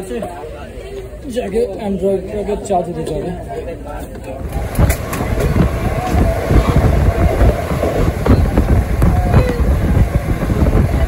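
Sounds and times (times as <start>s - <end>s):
train wheels rumbling: 4.4s - 11.0s.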